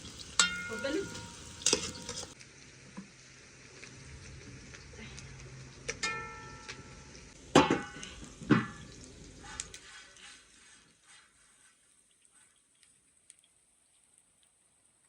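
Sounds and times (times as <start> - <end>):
metal cookware clanking: 0.0 - 2.4, 6.0 - 9.6.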